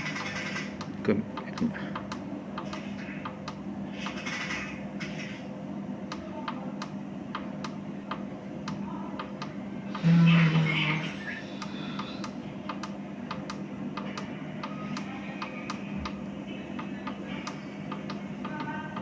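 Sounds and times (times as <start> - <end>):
machine humming: 0.0 - 19.0
timer clicks: 11.6 - 16.2.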